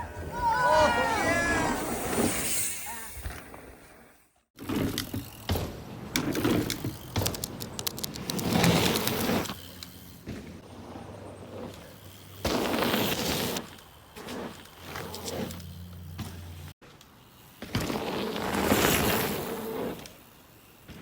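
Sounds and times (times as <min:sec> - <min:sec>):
bike tyres rushing on dirt: 0:00.0 - 0:21.0
bike rattling clicks: 0:04.8 - 0:10.2.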